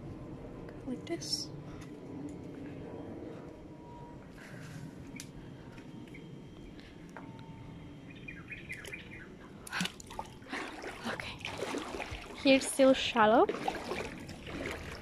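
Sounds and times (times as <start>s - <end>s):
low outdoor background: 0.0s - 15.0s
small birds chirping: 5.1s - 9.7s.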